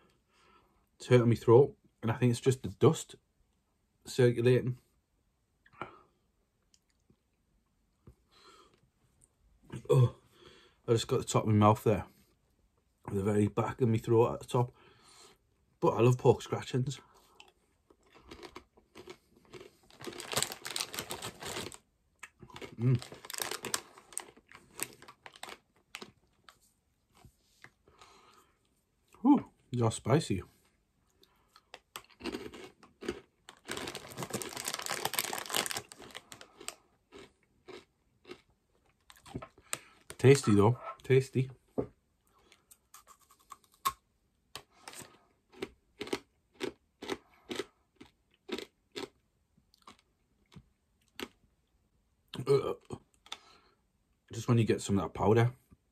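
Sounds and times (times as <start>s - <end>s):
pork rind crunching: 17.4s - 26.4s, 31.6s - 40.2s, 42.7s - 51.4s.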